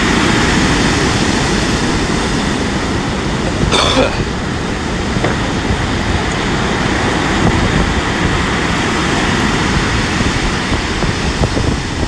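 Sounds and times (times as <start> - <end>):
sea surf: 0.0 - 12.0
wind buffeting microphone: 0.0 - 12.0.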